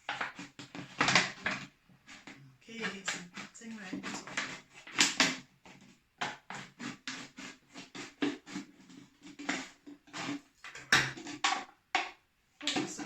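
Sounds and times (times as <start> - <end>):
scissors snipping plastic bottle: 0.0 - 5.4.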